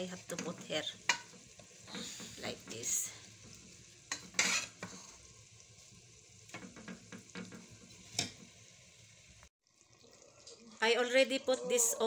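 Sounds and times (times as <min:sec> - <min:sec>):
food sizzling in pot: 0:00.0 - 0:12.0
spoon knocking and scraping pot: 0:00.3 - 0:05.1, 0:06.5 - 0:08.5.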